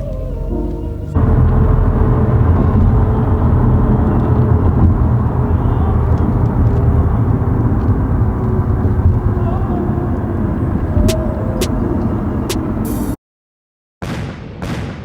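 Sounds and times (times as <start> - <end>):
vehicle engine and road rumble: 0.0 - 13.2.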